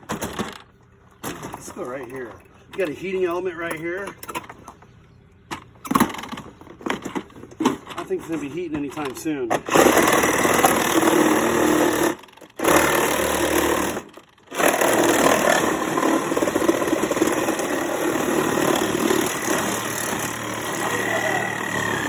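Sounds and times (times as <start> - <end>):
power saw cutting metal and plastic: 9.5 - 22.0.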